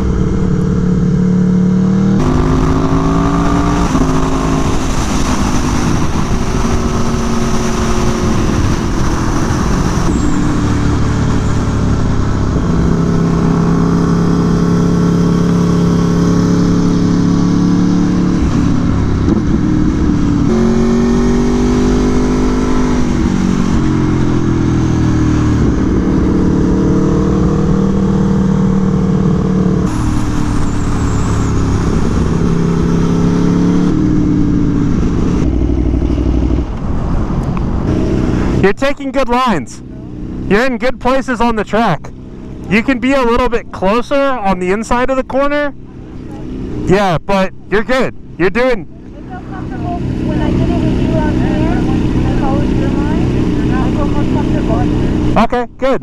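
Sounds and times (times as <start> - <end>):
motorcycle engine running hard: 0.0 - 56.0
wind rushing: 2.2 - 15.4.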